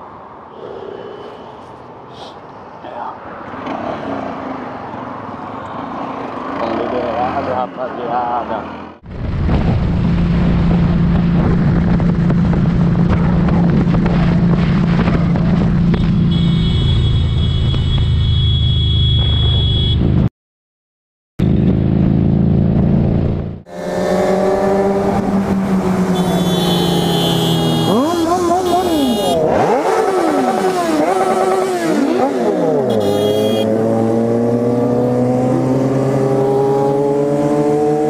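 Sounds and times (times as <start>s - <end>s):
road and wind noise: 0.0s - 20.3s, 21.4s - 38.0s.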